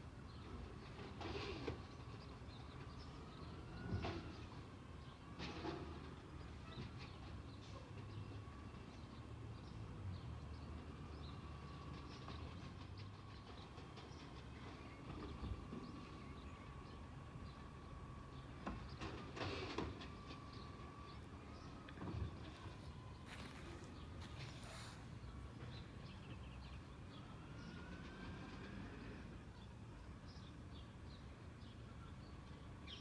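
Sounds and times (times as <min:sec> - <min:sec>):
truck engine rumbling: 0:10.7 - 0:29.2.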